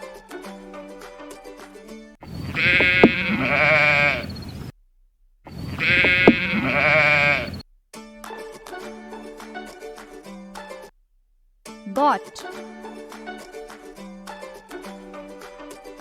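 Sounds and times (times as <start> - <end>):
goat bleating: 2.2 - 4.4, 5.6 - 7.6
plucked-string background music: 8.0 - 10.9, 11.7 - 16.0.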